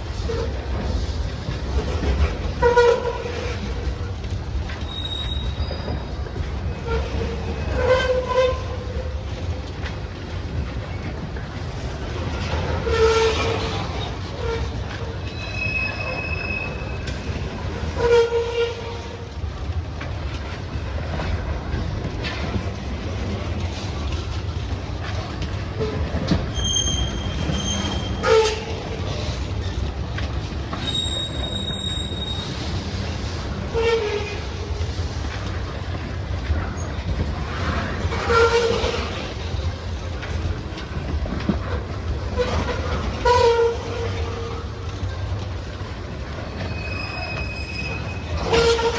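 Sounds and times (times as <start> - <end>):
train cars rumbling past: 0.0 - 48.9
metal wheels squealing: 4.8 - 6.1, 12.4 - 18.6, 25.8 - 29.8, 30.7 - 34.5, 36.7 - 39.3, 46.5 - 48.9.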